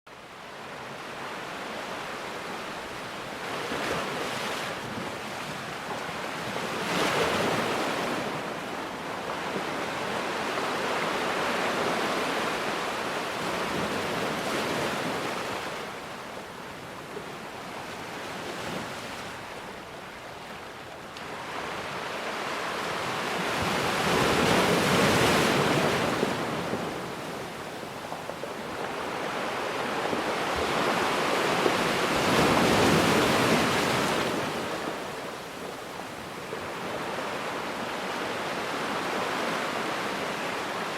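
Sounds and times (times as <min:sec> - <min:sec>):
ocean waves breaking: 0:00.3 - 0:40.9.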